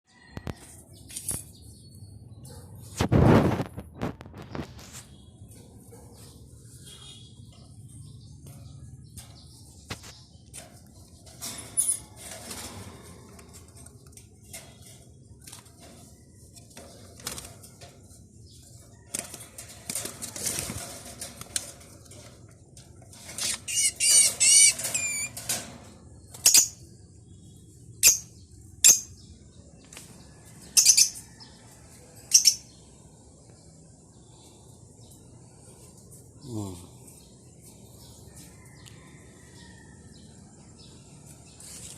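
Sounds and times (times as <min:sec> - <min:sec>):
bird wings fluttering: 0:16.8 - 0:17.8, 0:19.1 - 0:22.0.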